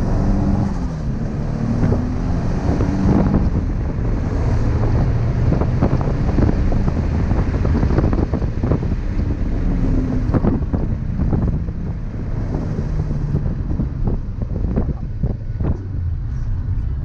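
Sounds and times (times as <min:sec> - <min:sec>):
car engine shifting gears: 0:00.0 - 0:17.0
road and wind noise: 0:00.0 - 0:17.0.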